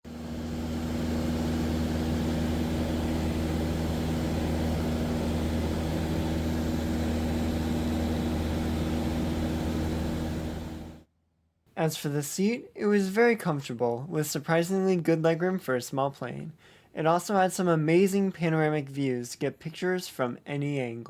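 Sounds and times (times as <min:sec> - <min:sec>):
propeller plane engine drone: 0:00.1 - 0:11.0.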